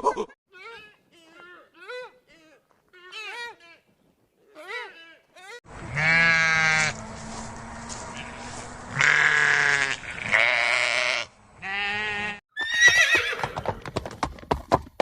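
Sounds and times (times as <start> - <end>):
goat bleating: 5.7 - 7.0, 7.8 - 13.3
horse whinnying: 11.7 - 13.9.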